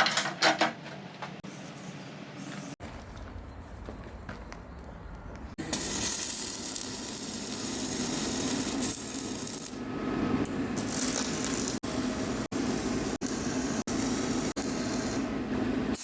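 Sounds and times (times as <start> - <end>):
welding arc crackling: 5.6 - 9.8, 10.4 - 15.4.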